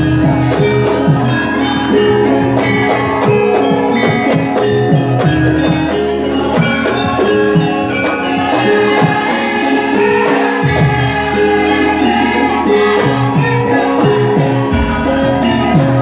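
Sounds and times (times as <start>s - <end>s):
music with beat and bass: 13.9s - 16.0s
person singing: 14.7s - 16.0s.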